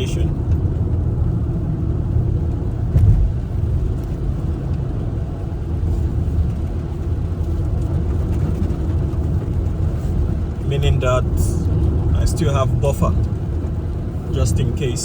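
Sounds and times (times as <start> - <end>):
car road and engine rumble: 0.0 - 15.0
thump: 2.9 - 3.4.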